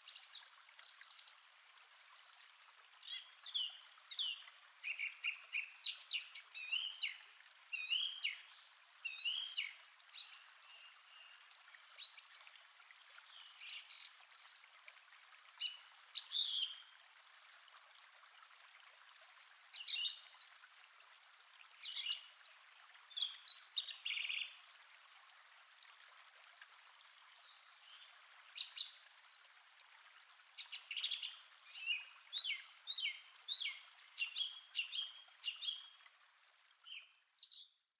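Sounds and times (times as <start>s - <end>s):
faint steady hiss: 0.0s - 37.9s
songbirds singing and chirping: 21.8s - 25.6s, 30.3s - 35.9s, 36.8s - 37.9s.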